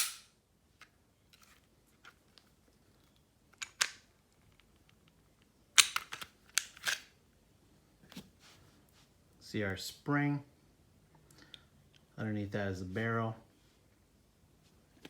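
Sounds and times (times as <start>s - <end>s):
pistol metal parts clicking: 0.0s - 2.2s, 3.1s - 7.2s.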